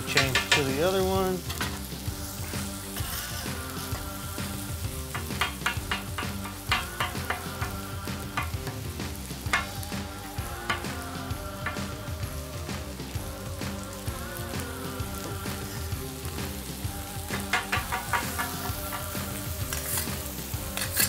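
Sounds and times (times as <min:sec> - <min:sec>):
utensils tapping on a grill: 0:00.0 - 0:04.1, 0:05.0 - 0:11.0, 0:11.6 - 0:12.0, 0:17.2 - 0:21.0
food sizzling on a grill: 0:00.0 - 0:21.0.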